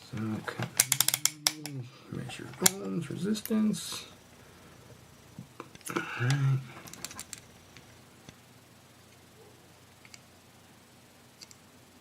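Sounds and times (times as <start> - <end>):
probe tips clicking on circuit board: 0.8 - 1.8.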